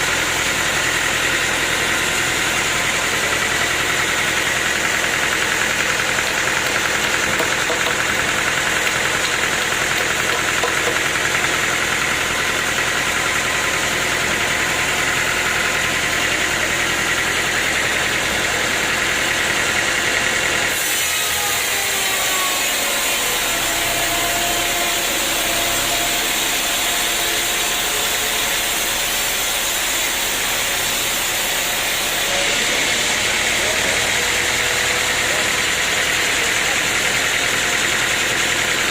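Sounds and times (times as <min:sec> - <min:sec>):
sawmill machinery drone: 0:00.0 - 0:38.9.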